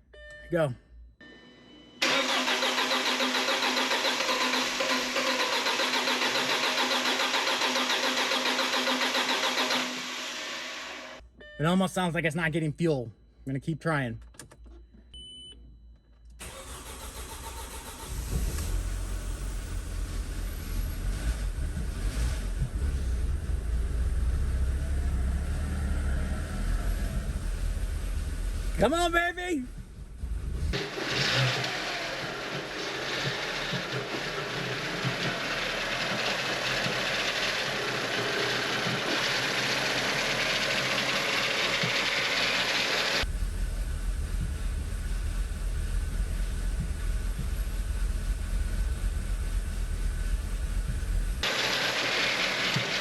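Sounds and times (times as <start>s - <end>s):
car starter cranking engine: 2.0s - 11.2s, 16.4s - 23.6s, 30.6s - 53.0s.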